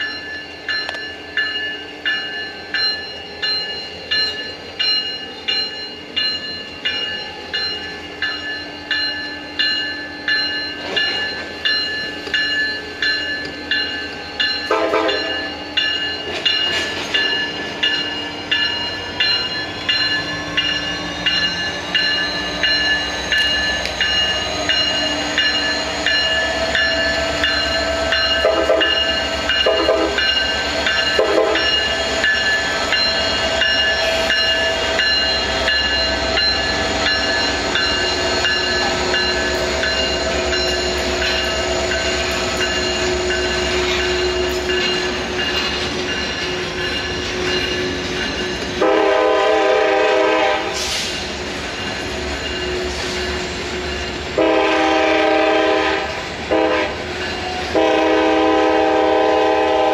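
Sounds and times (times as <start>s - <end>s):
high-pitched ringing tones: 0.0s - 48.9s
train wheels clicking over rail joints: 10.4s - 48.9s.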